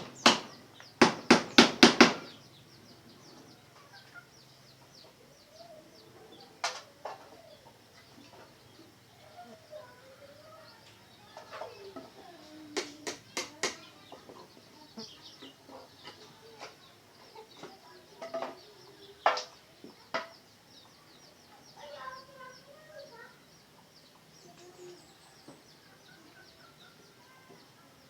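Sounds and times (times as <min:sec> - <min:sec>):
sharp knocks: 0:00.0 - 0:02.4.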